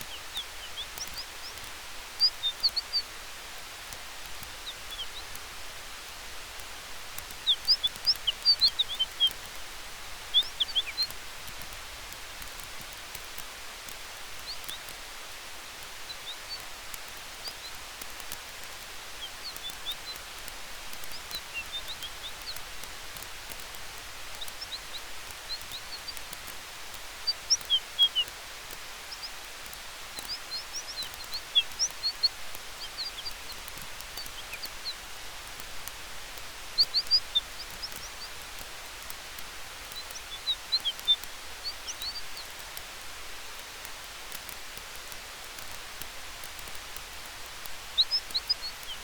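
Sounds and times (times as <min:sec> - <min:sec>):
faint campfire crackles: 0:00.0 - 0:49.0
small bird chirping: 0:00.0 - 0:49.0
wind through trees: 0:00.0 - 0:49.0
high bird chirps: 0:07.4 - 0:09.4, 0:10.3 - 0:11.1, 0:27.2 - 0:28.3, 0:30.2 - 0:35.0, 0:36.8 - 0:38.4, 0:39.9 - 0:42.5.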